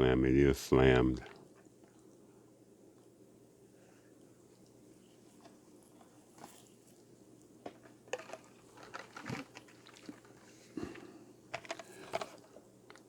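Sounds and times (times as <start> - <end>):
toy trucks clicking and knocking: 11.5 - 12.5.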